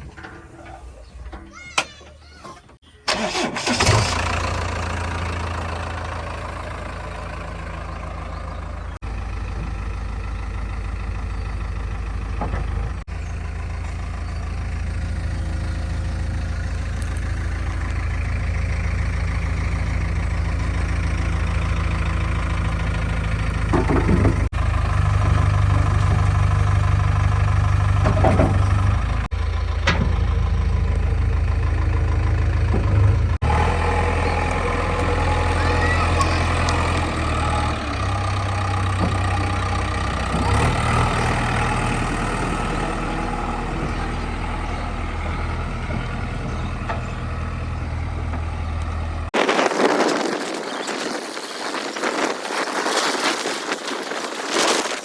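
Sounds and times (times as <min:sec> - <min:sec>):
diesel engines running: 0:00.0 - 0:55.0
knocks and clatters: 0:12.2 - 0:13.1, 0:23.5 - 0:26.8, 0:27.7 - 0:31.1.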